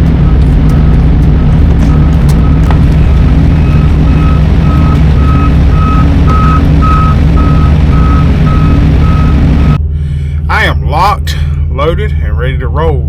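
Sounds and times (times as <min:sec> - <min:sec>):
diesel truck engine rumble: 0:00.0 - 0:13.0
reversing alarm beeping: 0:00.2 - 0:09.8.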